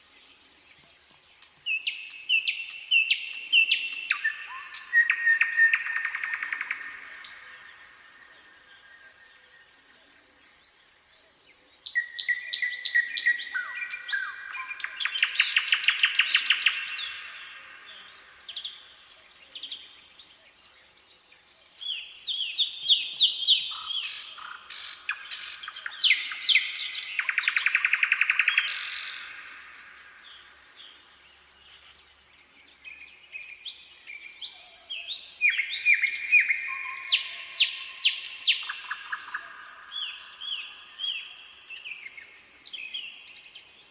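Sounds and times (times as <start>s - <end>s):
nightingale singing: 0.0s - 43.9s.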